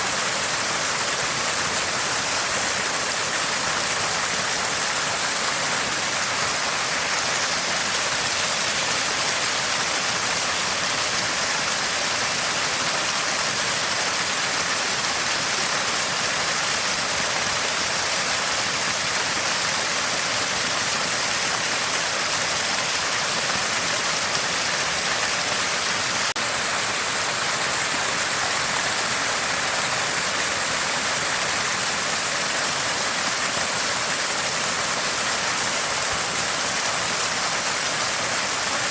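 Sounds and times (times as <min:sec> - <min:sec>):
spring water gushing and gurgling: 0:00.0 - 0:38.9.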